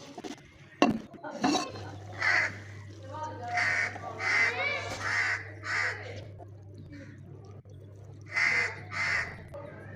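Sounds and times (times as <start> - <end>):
steady low hum: 5.0 - 9.9.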